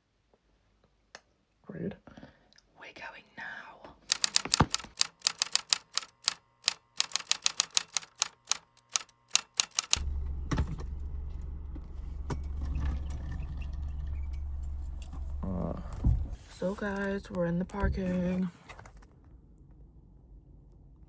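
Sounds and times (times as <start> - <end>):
rapid typewriter-like clicks: 4.1 - 10.0
steady low hum: 8.7 - 18.9.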